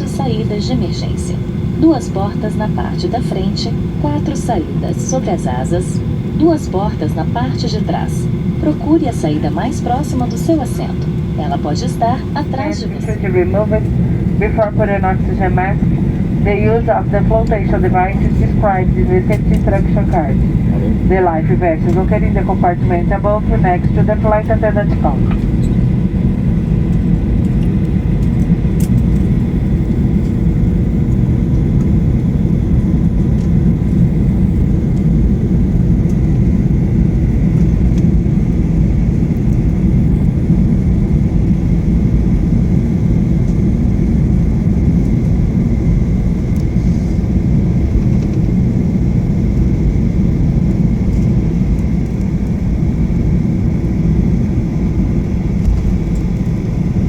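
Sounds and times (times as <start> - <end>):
faint steady whine: 0.0 - 57.0
jet engine rumble in cabin: 0.0 - 57.0.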